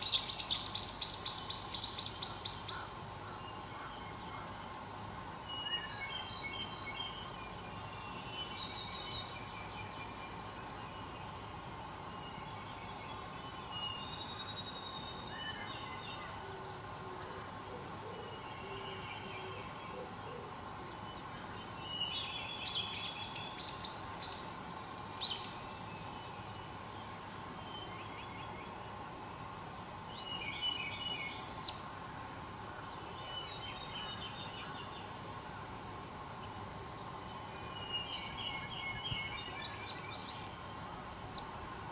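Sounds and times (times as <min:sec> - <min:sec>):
wild birds singing: 0:32.7 - 0:41.6.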